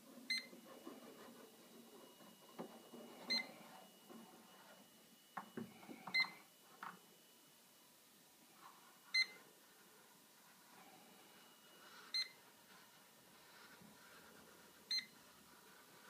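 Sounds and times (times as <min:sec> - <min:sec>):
leak detector beeping: 0:00.3 - 0:00.5, 0:03.3 - 0:03.6, 0:06.1 - 0:06.5, 0:09.2 - 0:09.4, 0:12.1 - 0:12.4, 0:14.9 - 0:15.2.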